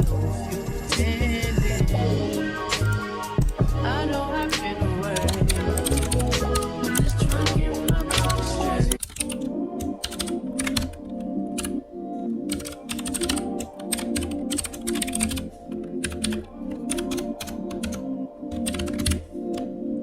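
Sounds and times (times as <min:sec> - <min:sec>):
background music: 0:00.0 - 0:20.0
keyboard keystrokes clicking: 0:04.4 - 0:11.8, 0:12.4 - 0:19.7.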